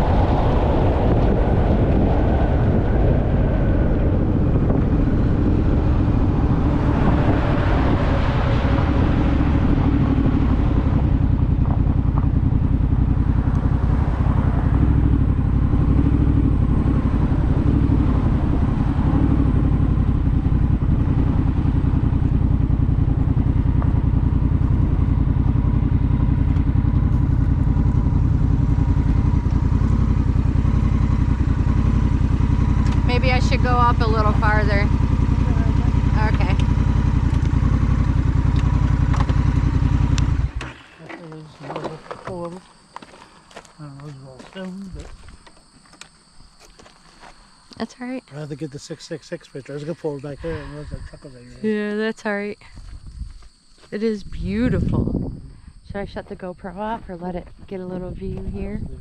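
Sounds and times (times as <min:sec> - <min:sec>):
wind rushing over microphone: 0:00.0 - 0:40.6, 0:52.7 - 0:59.0
motorcycle engine running: 0:00.0 - 0:59.0.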